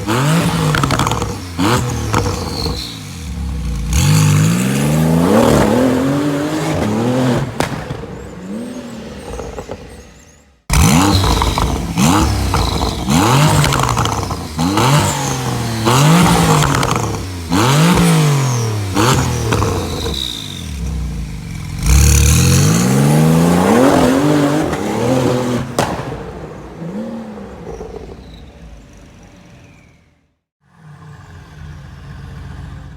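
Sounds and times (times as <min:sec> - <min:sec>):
sports car engine revving: 0:00.0 - 0:30.0.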